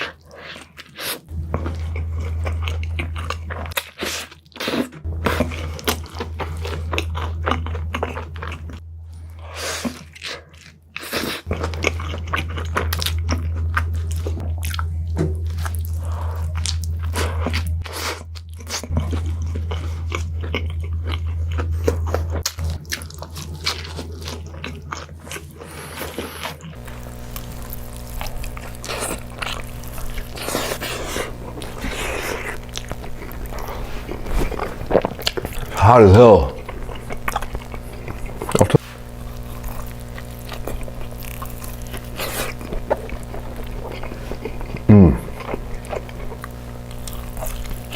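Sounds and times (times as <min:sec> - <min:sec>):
person chewing a burger: 0:00.0 - 0:47.9
steady low hum: 0:11.5 - 0:47.9.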